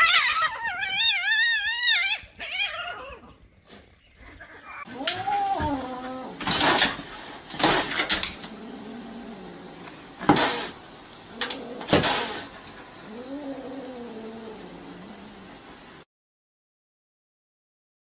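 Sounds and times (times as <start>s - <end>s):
dog whining: 4.8s - 7.2s, 7.8s - 15.4s
kitten hissing and spitting: 4.9s - 15.8s.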